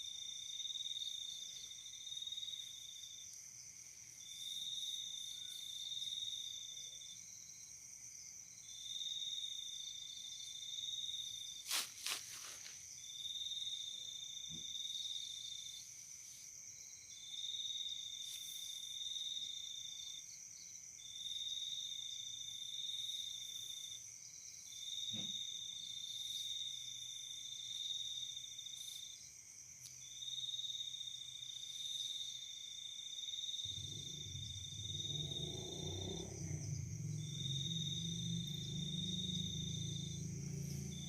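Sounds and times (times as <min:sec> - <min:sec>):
night insects buzzing and trilling: 0:00.0 - 0:41.0
low droning music-like sound: 0:33.7 - 0:41.0.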